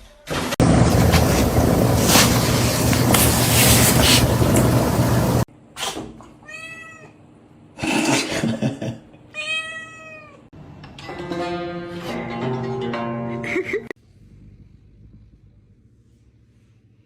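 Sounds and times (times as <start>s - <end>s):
loud rushing noise: 0.6s - 5.5s
cat meowing: 6.4s - 7.2s, 9.4s - 10.5s
plucked music: 10.8s - 13.9s.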